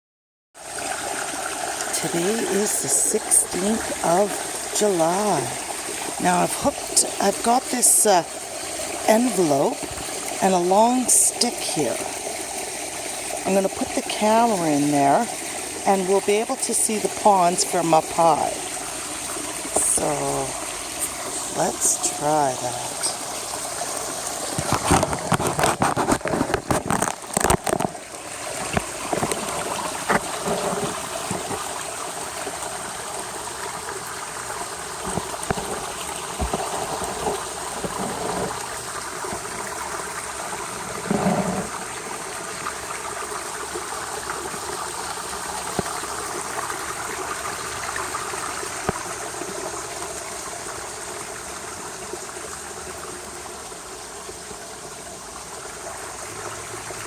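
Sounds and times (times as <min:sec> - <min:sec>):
pond water trickling and splashing: 0:00.6 - 0:57.0
paper rustling and knocking: 0:24.6 - 0:28.0.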